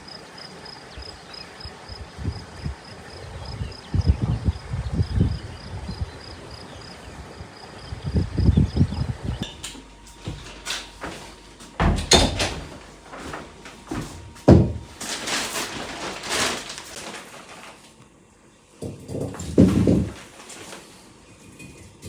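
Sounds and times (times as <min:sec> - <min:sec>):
objects knocking and scraping: 0:09.4 - 0:17.8, 0:18.8 - 0:22.0.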